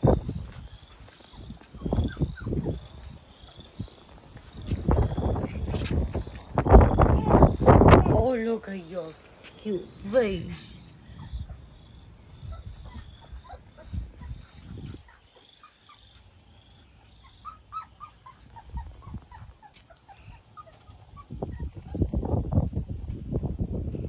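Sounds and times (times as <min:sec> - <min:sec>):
puppies whimpering: 0:00.9 - 0:04.0, 0:12.4 - 0:22.2.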